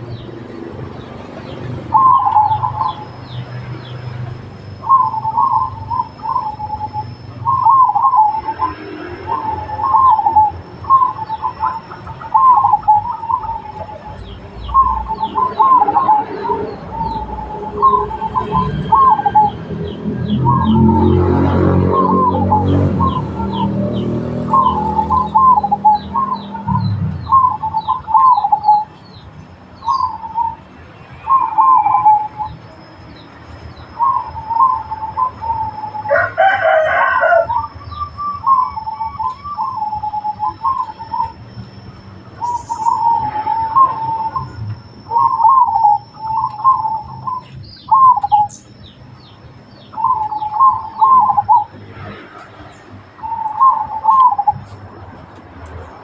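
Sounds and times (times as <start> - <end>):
doves cooing trilled phrases: 0.0 - 56.0
small birds chirping: 0.0 - 56.0
rooster crowing: 35.7 - 38.0.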